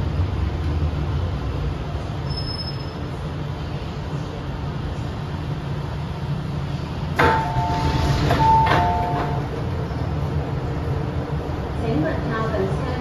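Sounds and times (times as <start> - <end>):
train interior rumble: 0.0 - 13.0
two-tone door chime beeps: 7.2 - 9.5
train door clunks: 7.2 - 9.6.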